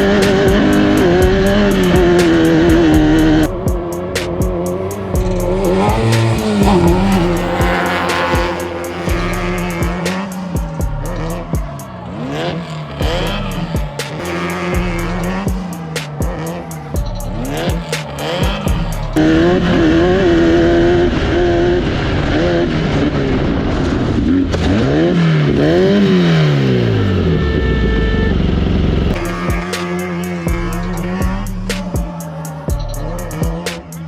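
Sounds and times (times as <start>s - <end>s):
background music with steady beat: 0.0s - 19.3s, 29.1s - 34.0s
race car engines revving: 0.0s - 34.0s.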